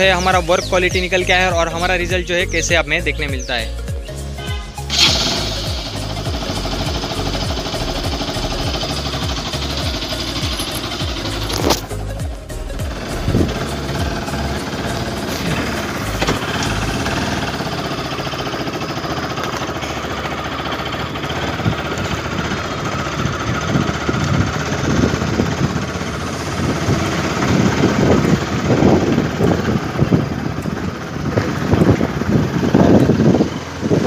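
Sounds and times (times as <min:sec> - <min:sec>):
motorcycle engine running: 0:00.0 - 0:34.0
wind buffeting microphone: 0:12.9 - 0:16.2, 0:21.5 - 0:34.0.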